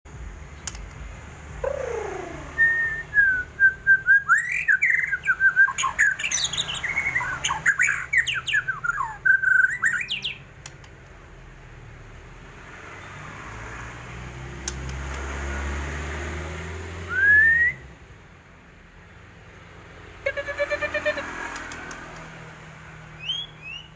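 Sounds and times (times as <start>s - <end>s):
bird singing whistles and chatter: 1.6s - 10.4s, 23.2s - 23.9s.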